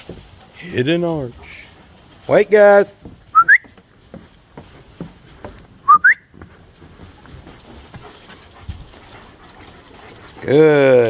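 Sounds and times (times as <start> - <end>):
faint ticks and rustles: 0.0 - 11.0
person whistling: 3.3 - 3.7, 5.8 - 6.3.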